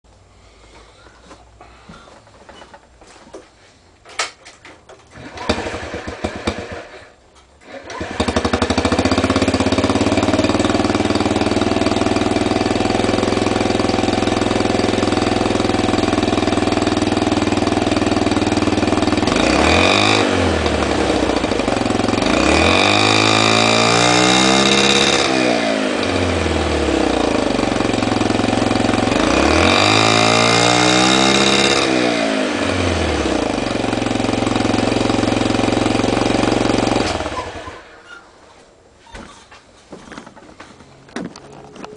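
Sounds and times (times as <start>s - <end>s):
scooter engine starting: 4.2s - 38.3s
scooter engine idling: 5.1s - 23.5s, 24.8s - 30.0s, 31.6s - 38.1s
scooter engine revving: 5.1s - 38.1s.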